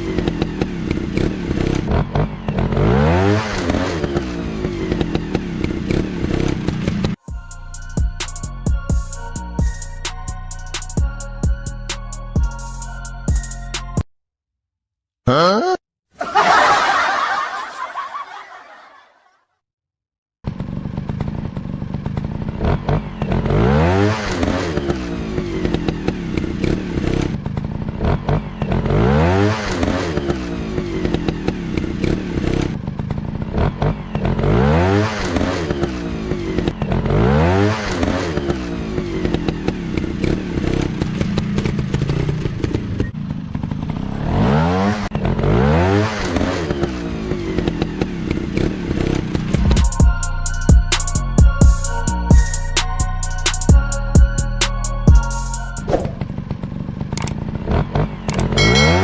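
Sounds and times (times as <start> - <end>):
dirt bike engines revving: 0.0 - 7.2, 20.5 - 49.8, 55.8 - 59.0.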